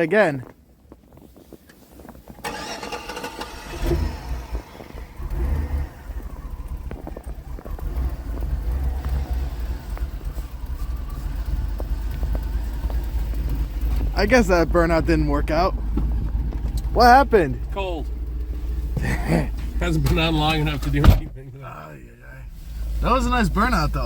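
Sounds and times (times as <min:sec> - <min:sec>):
engine starting and revving: 0:02.4 - 0:21.4.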